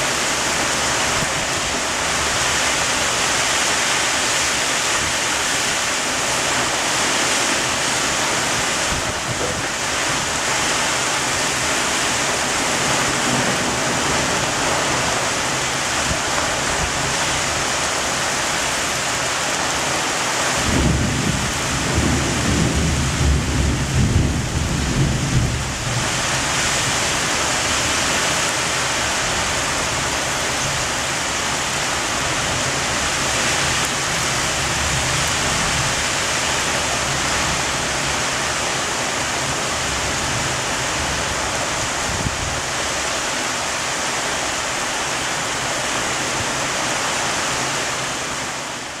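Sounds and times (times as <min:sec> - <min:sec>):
heavy rain pouring: 0:00.0 - 0:49.0
thunder rumbling: 0:20.5 - 0:27.8.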